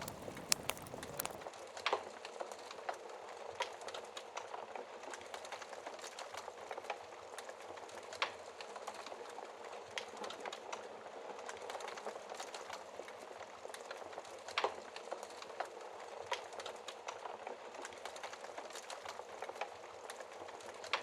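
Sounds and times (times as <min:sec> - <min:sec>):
rain hiss: 0:00.0 - 0:01.4
burning logs crackling: 0:00.0 - 0:01.5.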